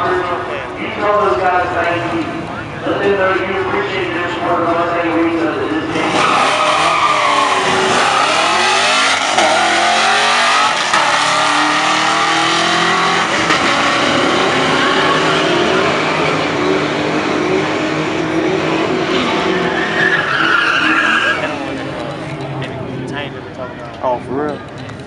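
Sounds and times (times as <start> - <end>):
car engine accelerating at full throttle: 5.8 - 20.3.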